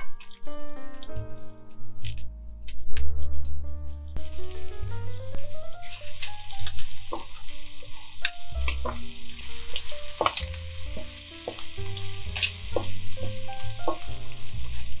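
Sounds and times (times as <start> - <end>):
light background music: 0.0 - 15.0
shrimp sizzling in a frying pan: 4.2 - 15.0.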